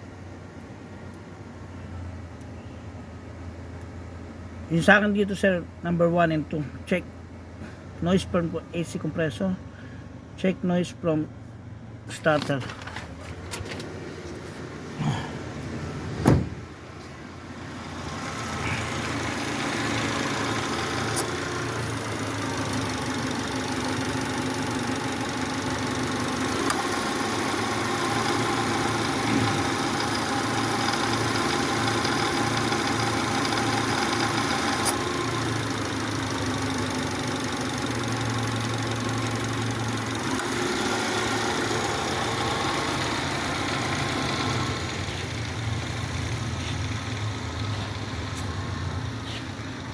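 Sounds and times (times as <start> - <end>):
car engine idling: 0.0 - 49.9
sharp clunk: 16.2 - 16.6.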